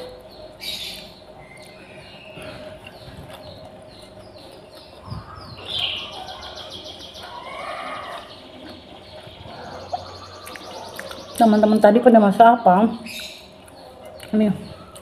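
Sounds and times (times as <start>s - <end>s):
birds chirping: 0.0s - 15.0s
bird trilling: 0.6s - 14.0s.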